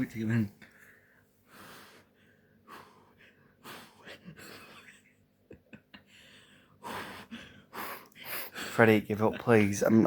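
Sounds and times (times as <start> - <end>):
person breathing deeply: 6.1 - 8.8.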